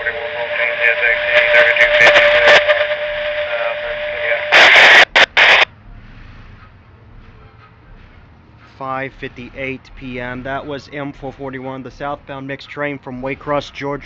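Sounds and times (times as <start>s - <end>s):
garbled radio chatter: 0.0s - 5.7s
radio static bursts: 0.0s - 5.7s
steady radio tone: 0.0s - 5.7s.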